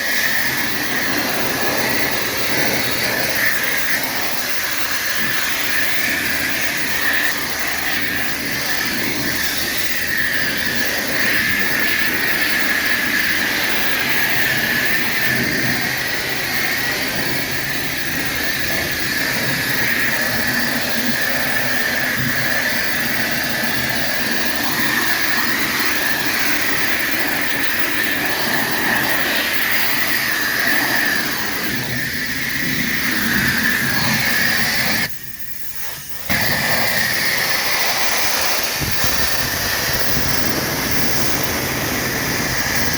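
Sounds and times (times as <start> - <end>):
pressure washer spraying: 0.0 - 42.9.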